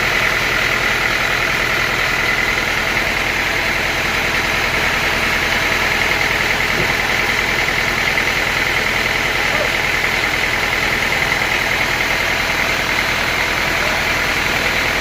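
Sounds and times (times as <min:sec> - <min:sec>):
sawmill machinery drone: 0:00.0 - 0:15.0.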